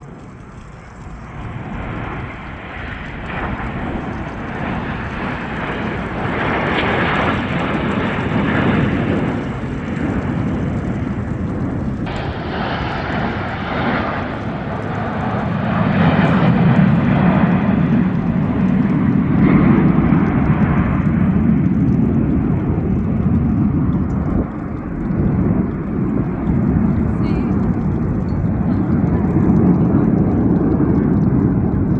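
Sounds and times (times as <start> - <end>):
jet aircraft flying overhead: 0.0 - 31.9.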